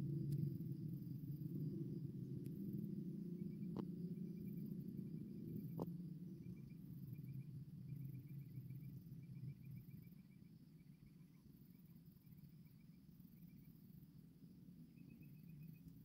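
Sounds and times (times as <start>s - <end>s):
low rumble: 0.0s - 9.6s
faint rapid chirps: 3.4s - 16.0s.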